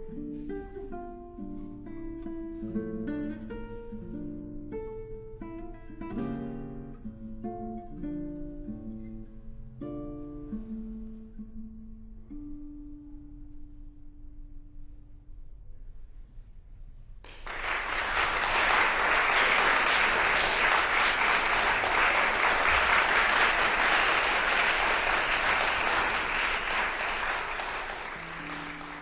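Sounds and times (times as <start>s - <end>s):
crowd applauding: 17.3s - 29.0s.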